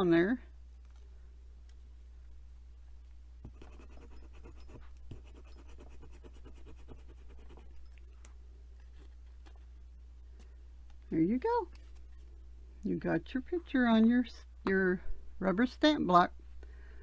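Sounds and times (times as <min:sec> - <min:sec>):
low steady hum: 0:00.0 - 0:17.0
tool scratching paper: 0:03.5 - 0:07.8.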